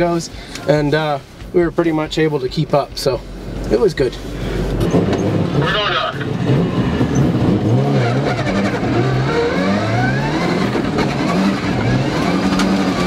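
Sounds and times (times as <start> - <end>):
rally car engine revving: 2.7 - 13.0.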